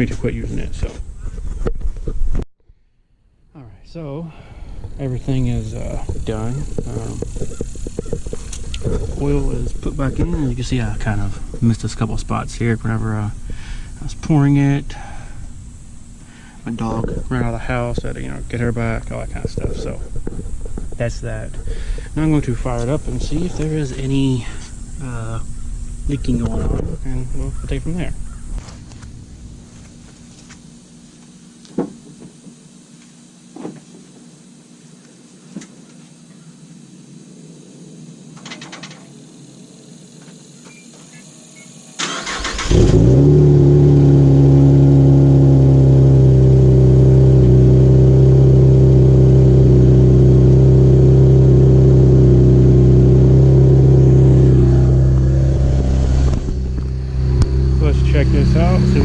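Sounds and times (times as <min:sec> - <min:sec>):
car engine starting and idling: 0:04.5 - 0:31.1, 0:41.9 - 0:59.0.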